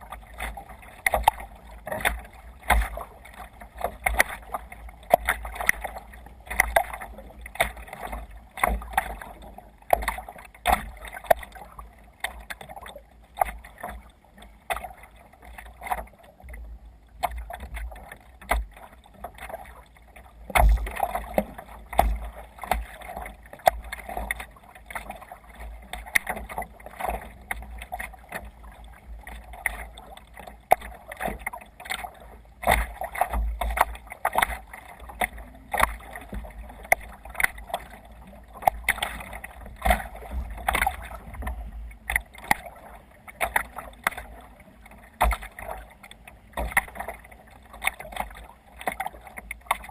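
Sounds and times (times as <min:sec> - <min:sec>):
water slapping kayak hull: 0:00.0 - 0:49.9
low rumble: 0:20.6 - 0:21.2.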